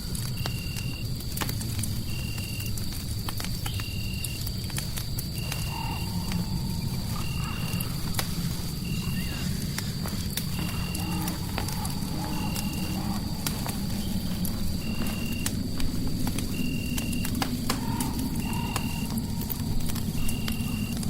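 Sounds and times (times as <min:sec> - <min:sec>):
fire pops and crackles: 0:00.0 - 0:21.0
low rumble: 0:05.2 - 0:21.0.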